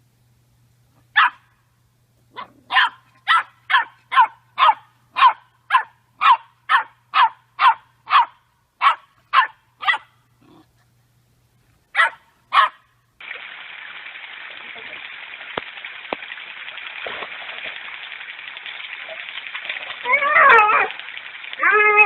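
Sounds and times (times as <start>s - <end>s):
dog barking: 1.2s - 1.5s, 2.4s - 10.2s, 12.0s - 12.9s.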